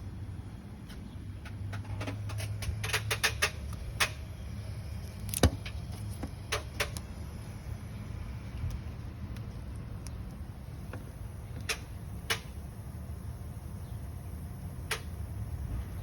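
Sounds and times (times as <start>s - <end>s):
sharp clicks and knocks: 0.8s - 4.3s, 5.2s - 7.1s, 8.6s - 12.6s, 14.9s - 15.2s.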